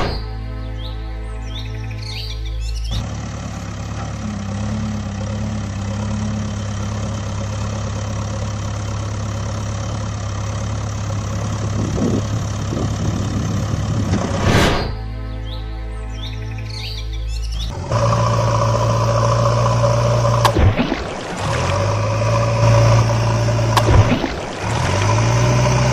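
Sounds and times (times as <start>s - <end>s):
heavy vehicle engine idling: 2.9s - 14.4s, 17.7s - 25.9s
loud burst of noise: 17.7s - 25.9s.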